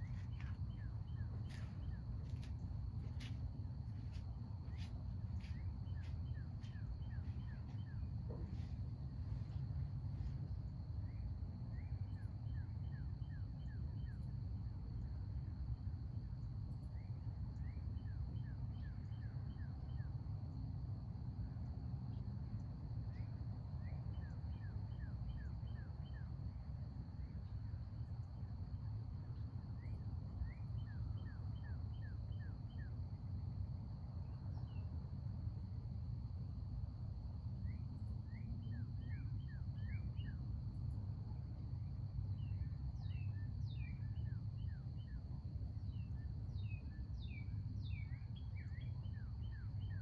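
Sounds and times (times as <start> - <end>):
songbird singing: 0.0 - 9.6, 29.8 - 33.0, 37.7 - 40.9, 41.9 - 50.0.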